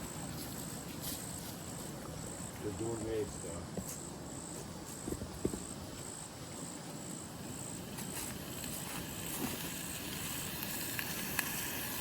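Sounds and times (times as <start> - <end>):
crickets chirping: 0.0 - 12.0
hot dogs sizzling: 7.4 - 12.0.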